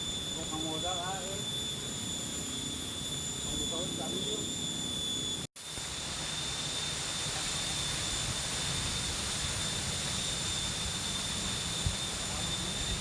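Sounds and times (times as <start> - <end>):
faint high-pitched tone: 0.0 - 5.5.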